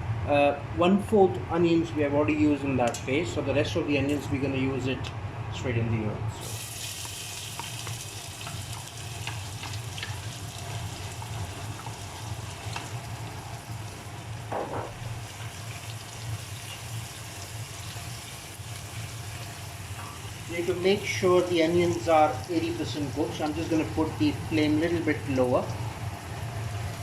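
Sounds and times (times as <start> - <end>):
onions sizzling in hot oil: 6.4 - 14.5, 15.1 - 24.6.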